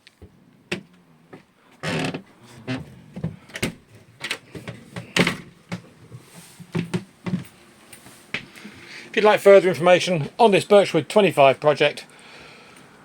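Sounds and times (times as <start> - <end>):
handling knocks and clatters: 0.1 - 7.6.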